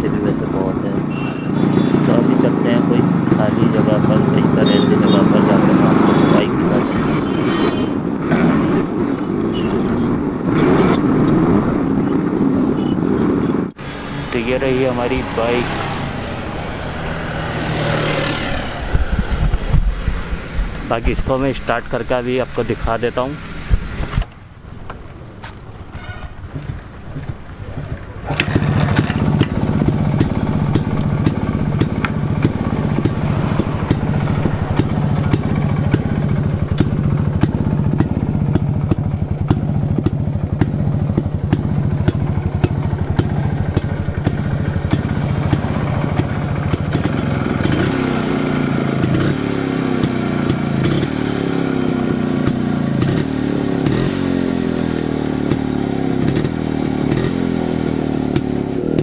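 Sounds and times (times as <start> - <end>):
motorcycle engine revving: 0.0 - 13.0, 13.7 - 24.4, 25.3 - 59.0
motorcycle engine starting and idling: 13.8 - 59.0.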